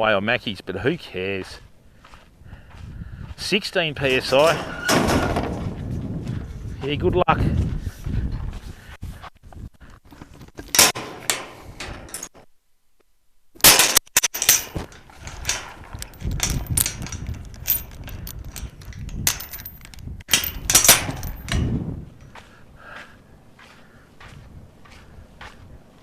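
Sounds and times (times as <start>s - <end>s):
knocks and clanks of handling: 10.1s - 12.4s, 13.6s - 21.7s.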